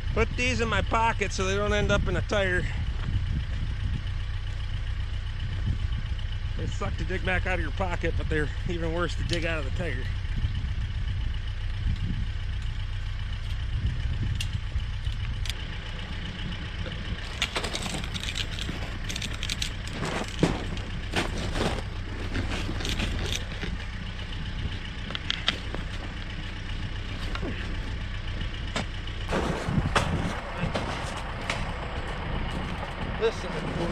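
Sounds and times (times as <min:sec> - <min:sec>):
tractor engine idling: 0:00.0 - 0:33.9
clicks and clinks of fence wire: 0:17.2 - 0:23.9.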